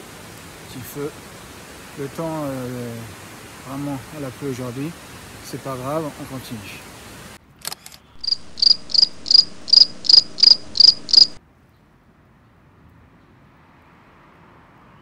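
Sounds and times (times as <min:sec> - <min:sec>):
faint steady hiss: 0:00.0 - 0:07.4, 0:08.2 - 0:11.4
sharp clicks: 0:07.6 - 0:11.4
high-pitched insect chirps: 0:08.2 - 0:11.4.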